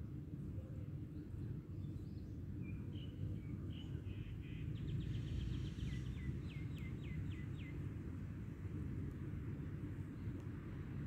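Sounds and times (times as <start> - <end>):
songbird singing: 1.2 - 7.8.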